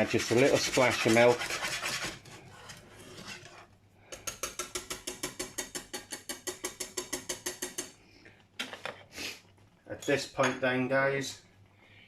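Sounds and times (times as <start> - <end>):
metal whisk clicking in saucepan: 4.3 - 7.9.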